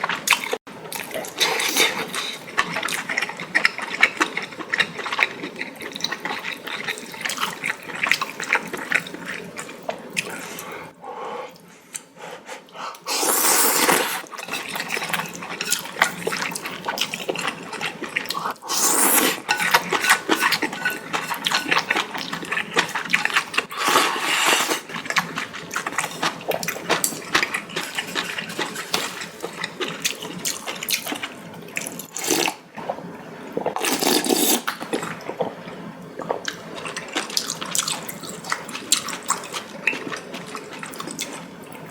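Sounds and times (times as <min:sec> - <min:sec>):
slurping noodles: 0:13.0 - 0:30.3, 0:31.0 - 0:32.6, 0:33.7 - 0:35.5.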